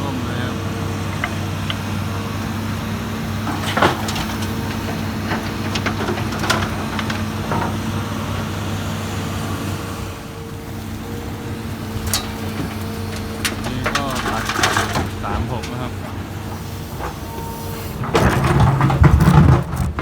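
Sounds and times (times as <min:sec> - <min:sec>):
diesel machinery humming: 0:00.0 - 0:20.0
sharp knocks and clatters: 0:18.0 - 0:20.0.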